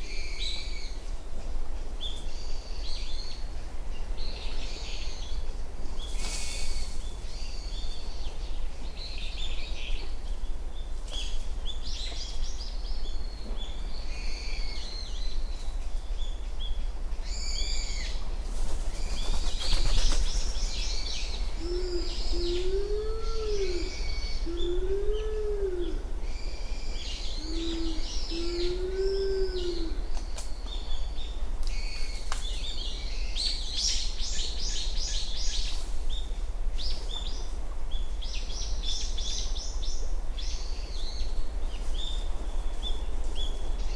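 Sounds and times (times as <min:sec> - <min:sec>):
dove cooing: 0:21.6 - 0:26.1, 0:27.4 - 0:30.0.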